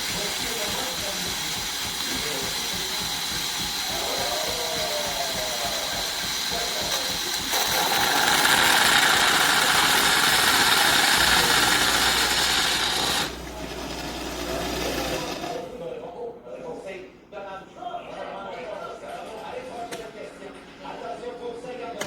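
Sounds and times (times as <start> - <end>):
espresso machine hissing: 0.0 - 15.8.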